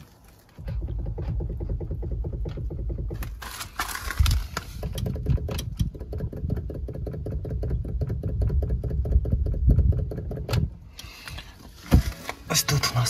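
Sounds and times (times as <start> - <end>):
low road rumble: 0.0 - 13.0
sharp steering knocks: 0.5 - 10.8.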